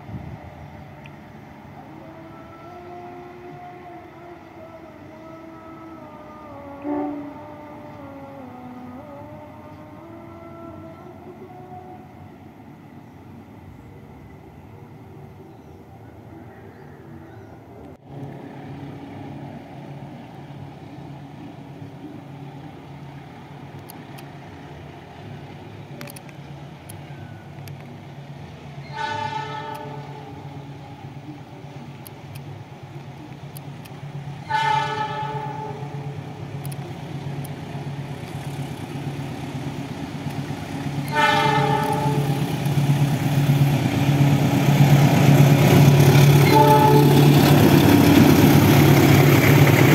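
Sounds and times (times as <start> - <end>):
diesel train engine drone: 0.0 - 49.9
train horn blasts: 1.8 - 12.4, 28.8 - 31.0, 34.3 - 36.4, 40.9 - 43.0, 44.0 - 48.5.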